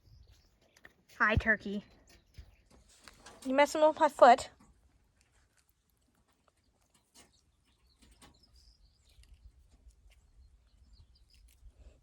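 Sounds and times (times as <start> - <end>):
small clicks and rustles: 0.3 - 3.6, 4.5 - 10.3.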